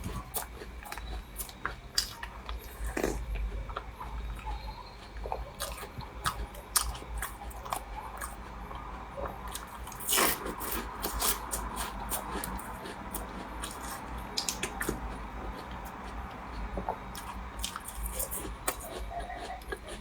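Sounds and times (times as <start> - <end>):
chewing crumbly pastry: 0.0 - 20.0.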